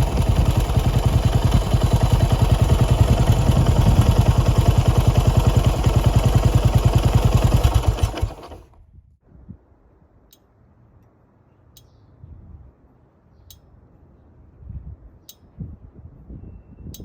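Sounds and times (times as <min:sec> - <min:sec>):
light sharp ticks: 0:13.4 - 0:13.7, 0:15.2 - 0:15.5.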